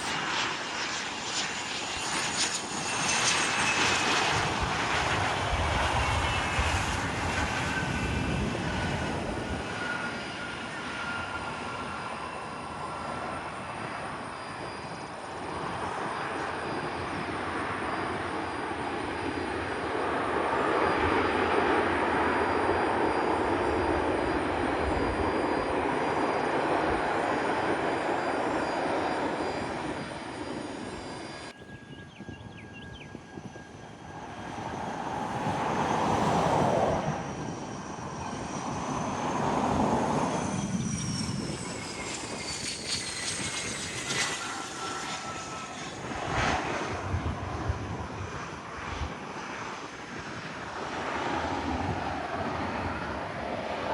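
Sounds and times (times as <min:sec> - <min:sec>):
high turbine whine: 0:00.0 - 0:53.9
jet engines rushing: 0:00.0 - 0:53.9.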